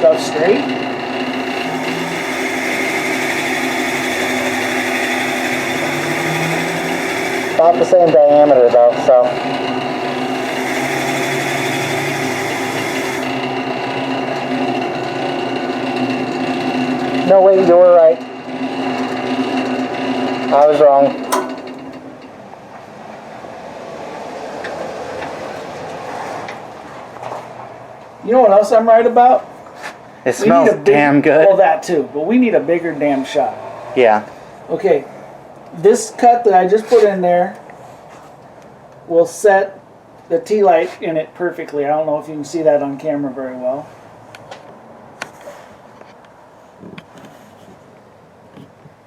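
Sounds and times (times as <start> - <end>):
wood lathe whirring: 0.0 - 22.0.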